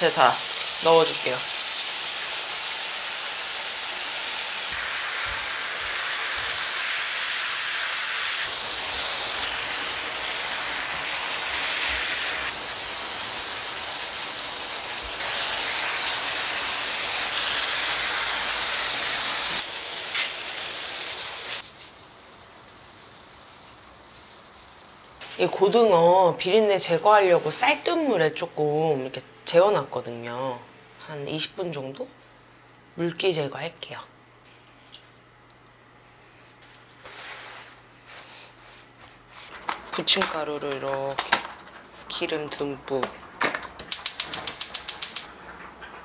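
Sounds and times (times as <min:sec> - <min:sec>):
food sizzling in a frying pan: 0:00.0 - 0:25.3.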